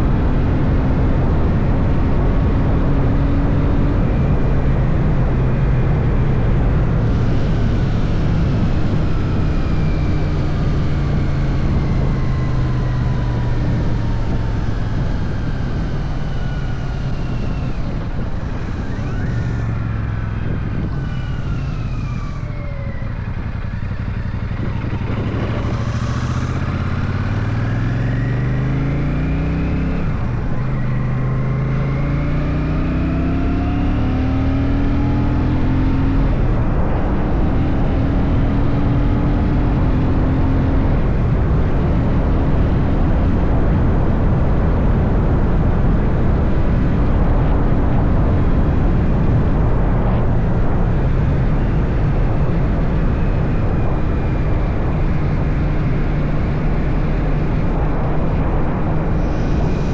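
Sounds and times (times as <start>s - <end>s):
motorcycle engine revving: 0.0s - 59.9s
wind rush: 0.0s - 59.9s.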